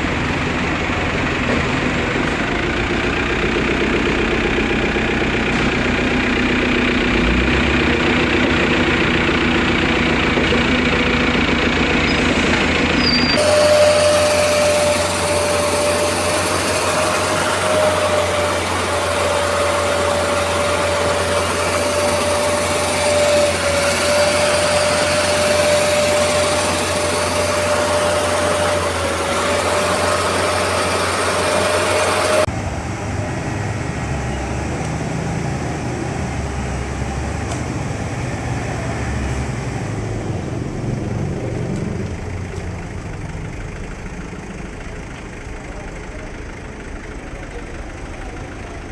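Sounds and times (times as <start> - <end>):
engine hum: 0.0 - 48.9
machine whine: 10.4 - 37.4.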